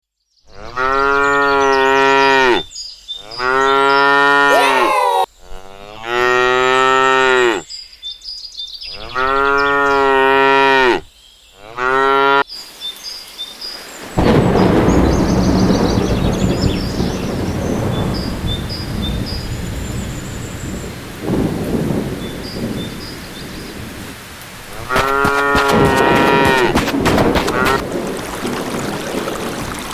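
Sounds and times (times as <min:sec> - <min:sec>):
cow mooing: 0:00.5 - 0:07.6, 0:08.9 - 0:12.4, 0:24.7 - 0:27.8
rain: 0:12.4 - 0:29.9
thunder rumbling: 0:14.1 - 0:29.9.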